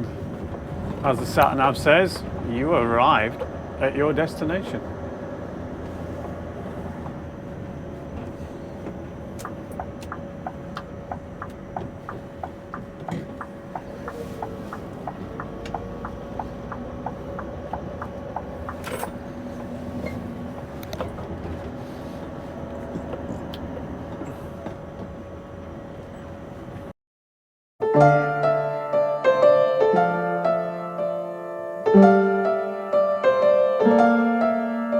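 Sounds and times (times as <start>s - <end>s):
lorry engine idling: 0.0s - 26.9s
regular ticking: 7.0s - 21.1s.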